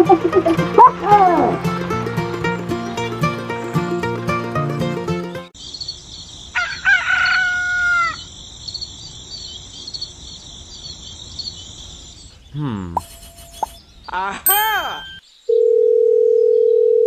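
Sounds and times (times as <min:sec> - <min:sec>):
high-pitched insect chirping: 0:05.6 - 0:12.2, 0:12.9 - 0:13.9
rooster crowing: 0:06.5 - 0:08.3.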